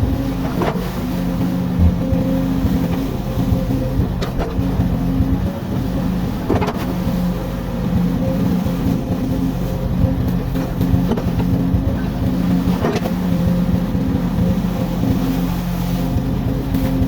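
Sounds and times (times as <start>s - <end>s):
excavator diesel engine running: 1.6s - 8.0s
short knocks: 1.8s - 2.3s.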